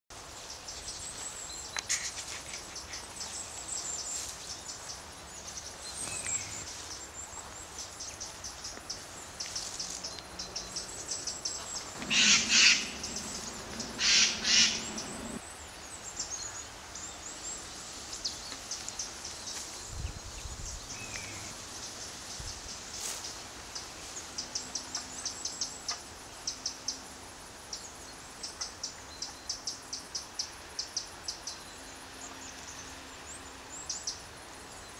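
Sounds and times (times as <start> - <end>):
birds chirping and calling: 8.2 - 15.4.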